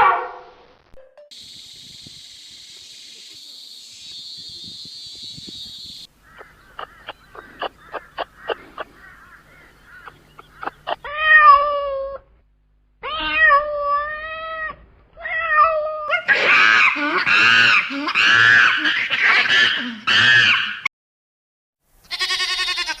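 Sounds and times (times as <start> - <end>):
cat meowing: 11.0 - 12.2, 13.0 - 16.2.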